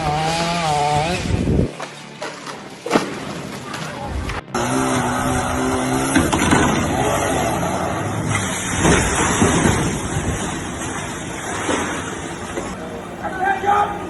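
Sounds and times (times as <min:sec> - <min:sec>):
motor running: 0:04.5 - 0:14.0.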